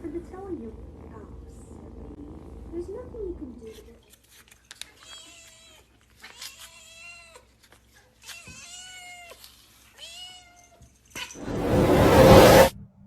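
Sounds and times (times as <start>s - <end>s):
loud rush of noise: 11.4s - 12.8s.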